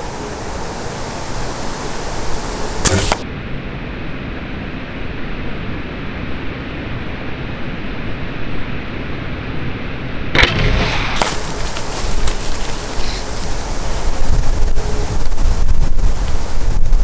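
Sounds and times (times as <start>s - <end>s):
wind buffeting microphone: 0.0s - 3.2s, 11.2s - 17.0s
sharp click: 2.8s - 3.2s.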